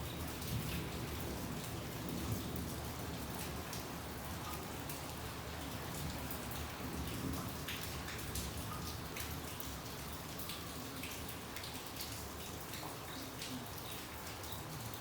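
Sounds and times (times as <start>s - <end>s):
rain falling: 0.0s - 15.0s
raindrops ticking on surfaces: 0.0s - 15.0s.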